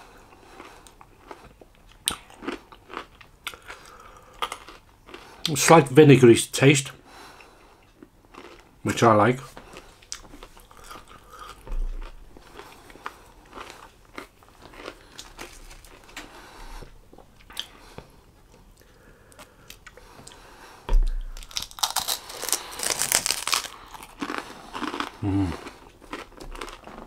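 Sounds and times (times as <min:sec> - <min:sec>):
person chewing with mouth clicks: 0:00.3 - 0:05.5, 0:07.4 - 0:08.8, 0:09.6 - 0:18.1, 0:18.7 - 0:20.4, 0:21.0 - 0:27.0
loud crunching and crackling: 0:21.2 - 0:27.0.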